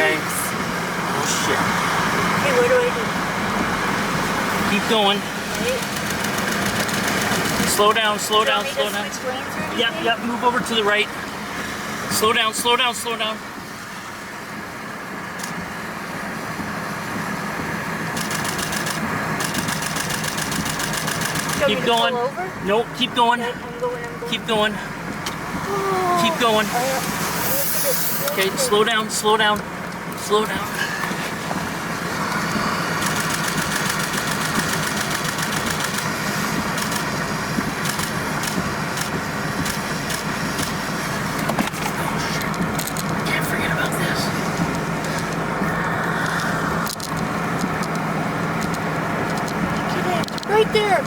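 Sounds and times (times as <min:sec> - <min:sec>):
car road and engine hum: 0:00.0 - 0:51.0
rapid even ticking: 0:04.4 - 0:08.6, 0:18.2 - 0:21.7, 0:32.3 - 0:37.2.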